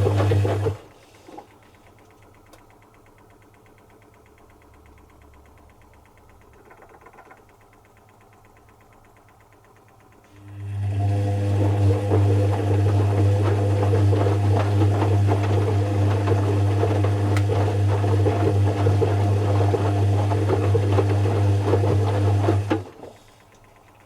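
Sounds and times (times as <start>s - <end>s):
faint rapid ticking: 1.5s - 10.3s, 23.2s - 24.0s.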